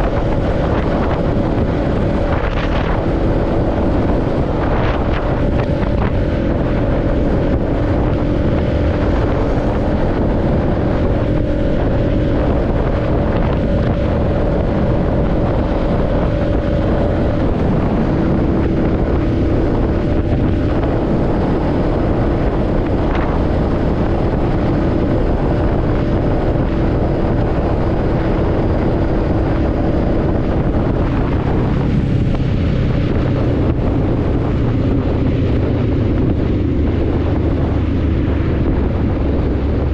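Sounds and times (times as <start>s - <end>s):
motorcycle engine cruising: 0.0s - 39.9s
wind rush on microphone: 0.0s - 39.9s.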